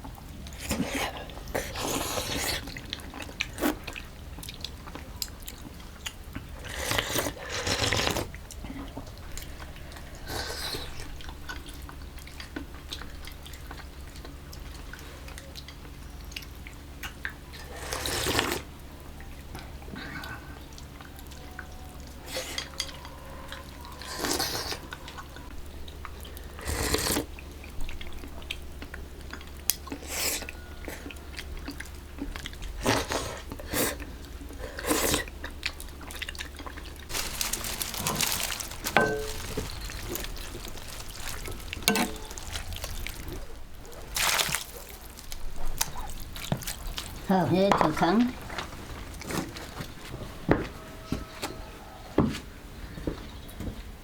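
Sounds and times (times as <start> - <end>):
rustles and scrapes of food preparation: 0.0 - 16.6, 17.3 - 53.9
low steady hum: 0.0 - 52.0.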